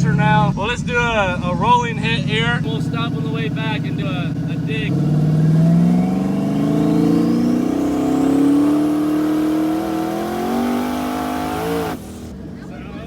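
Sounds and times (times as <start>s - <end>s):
turbo whine: 0.0s - 12.3s
car engine accelerating: 0.0s - 13.0s.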